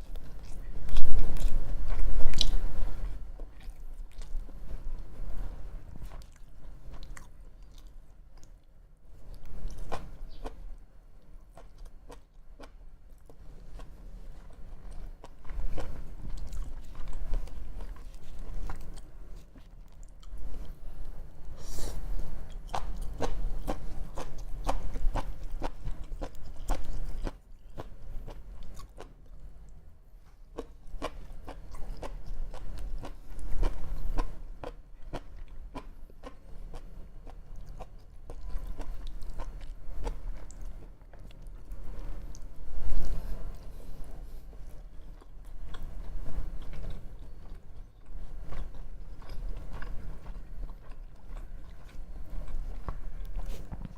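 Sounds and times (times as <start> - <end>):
biting and chewing: 22.5 - 29.2, 44.5 - 53.9.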